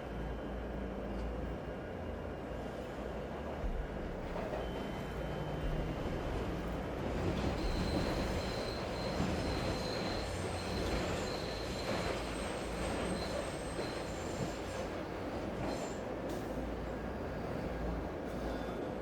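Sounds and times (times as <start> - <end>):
low rumble of moving train: 0.0 - 19.0
train wheels squealing on rails: 4.2 - 19.0.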